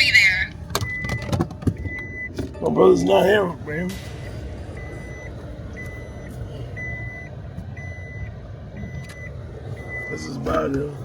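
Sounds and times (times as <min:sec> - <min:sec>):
electronic warning beeps: 0:00.0 - 0:02.4, 0:04.7 - 0:10.7.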